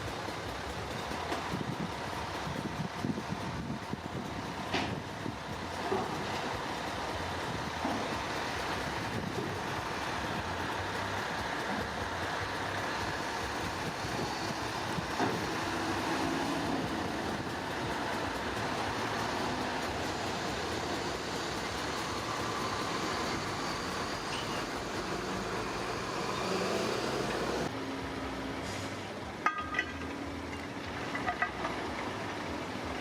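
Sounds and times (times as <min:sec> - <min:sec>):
heavy diesel machinery rumbling: 0:00.0 - 0:33.0.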